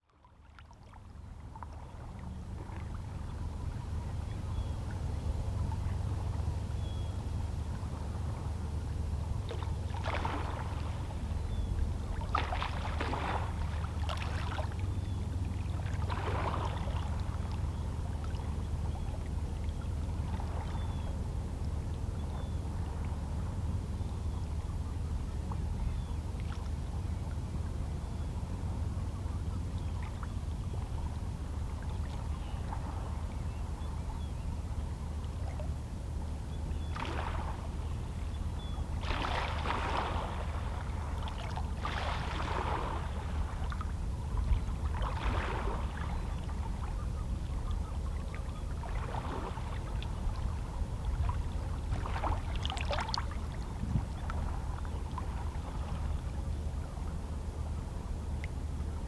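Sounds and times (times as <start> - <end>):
water splashes: 37.0 - 37.7, 39.0 - 43.9, 44.8 - 46.2, 48.8 - 50.4
small waves lapping on rocks: 39.0 - 43.8.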